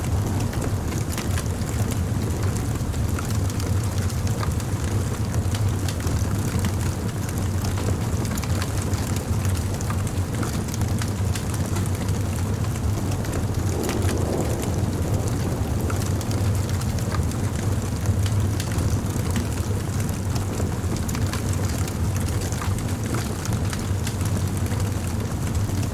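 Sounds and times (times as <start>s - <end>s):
fire crackling and popping: 0.0s - 25.9s
rush of flames: 8.5s - 25.9s.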